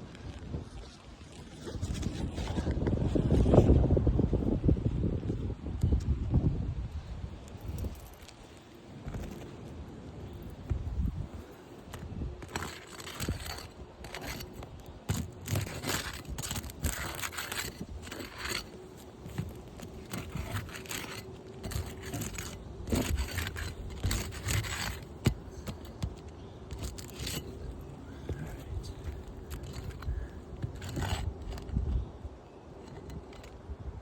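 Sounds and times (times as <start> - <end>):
roof shingle scraping and tearing: 7.8 - 32.1, 32.8 - 33.6.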